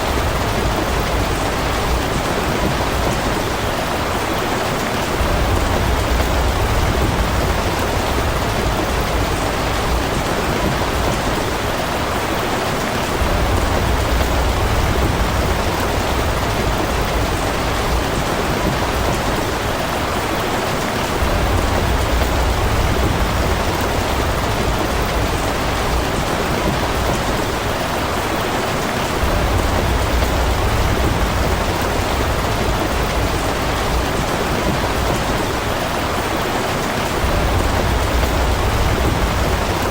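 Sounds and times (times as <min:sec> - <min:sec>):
steady rain falling: 0:00.0 - 0:39.9
low rumble: 0:05.2 - 0:11.2, 0:21.2 - 0:27.8, 0:29.2 - 0:35.4, 0:37.2 - 0:39.9.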